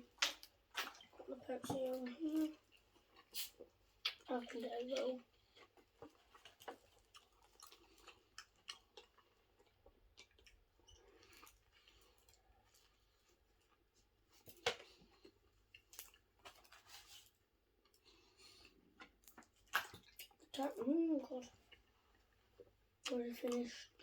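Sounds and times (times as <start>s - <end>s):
faint chewing: 0.0s - 24.0s
clicks and crinkles of handling: 4.1s - 18.1s.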